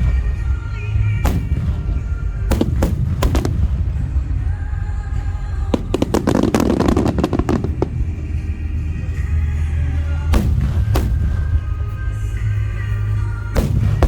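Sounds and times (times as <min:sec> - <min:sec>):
fireworks bangs and crackling: 0:00.0 - 0:14.0
music playing: 0:00.0 - 0:14.0
steady low rumble: 0:00.0 - 0:14.0.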